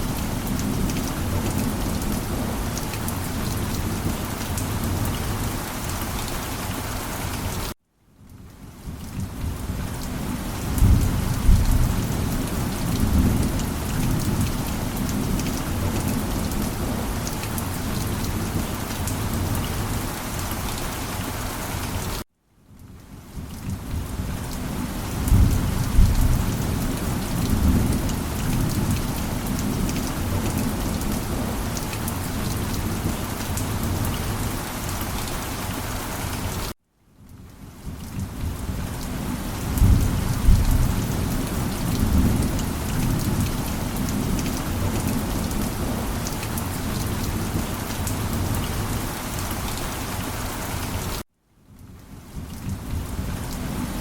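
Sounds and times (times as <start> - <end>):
heavy rain: 0.0 - 54.0
low thunder rumbling: 23.7 - 34.4, 38.2 - 49.0.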